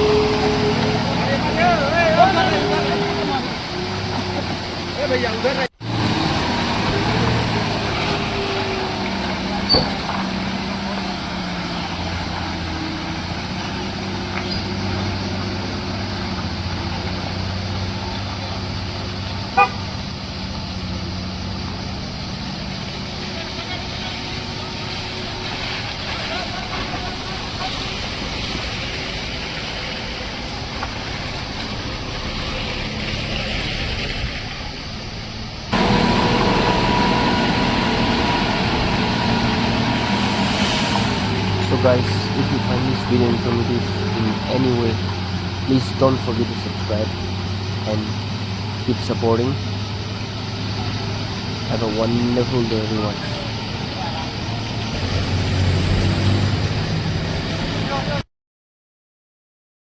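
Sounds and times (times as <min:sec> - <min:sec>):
vehicle engine running: 0:00.0 - 0:58.2
short horn toot: 0:19.6 - 0:19.8.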